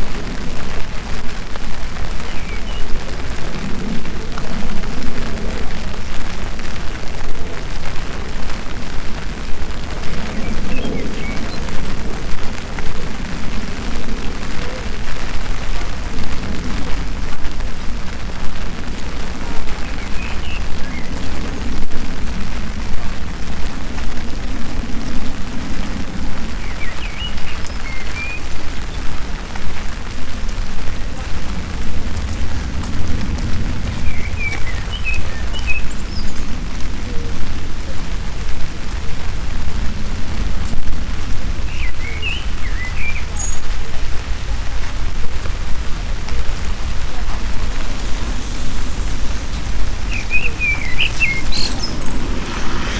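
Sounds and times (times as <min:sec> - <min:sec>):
rain falling: 0:00.0 - 0:52.9
bird chirps: 0:41.7 - 0:43.6, 0:47.7 - 0:52.9
deep low rumble: 0:44.7 - 0:52.9.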